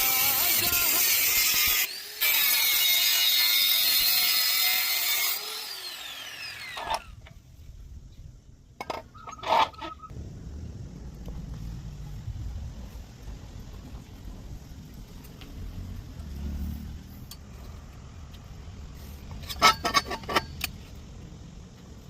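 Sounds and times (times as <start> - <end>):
power tool running with hiss: 0.0 - 6.9.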